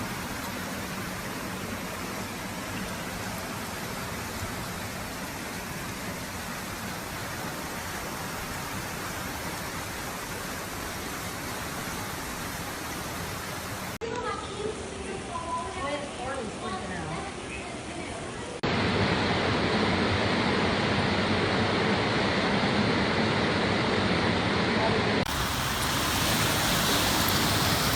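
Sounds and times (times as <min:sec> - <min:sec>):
water rushing: 0:00.0 - 0:14.0, 0:25.3 - 0:27.9.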